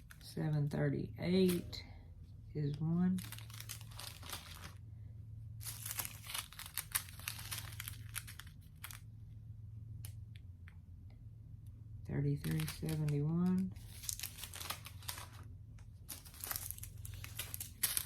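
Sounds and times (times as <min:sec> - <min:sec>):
plastic bags crinkling: 0:02.7 - 0:04.8, 0:05.6 - 0:09.1, 0:12.4 - 0:18.0.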